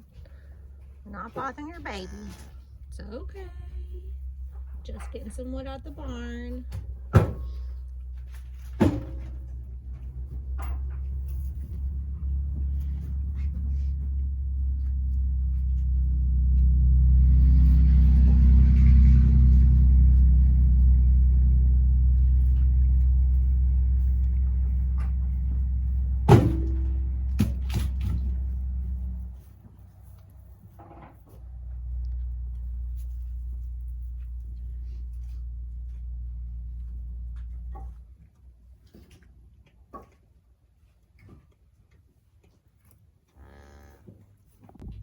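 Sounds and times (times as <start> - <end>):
vehicle engine humming: 0.0 - 39.2
sharp knocks: 26.3 - 28.3.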